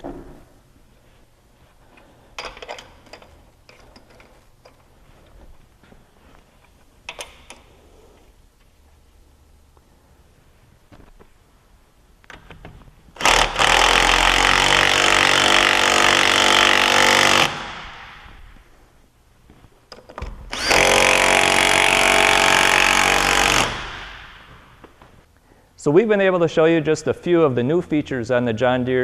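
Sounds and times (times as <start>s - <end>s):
power tool running: 13.2s - 18.1s, 20.5s - 24.4s.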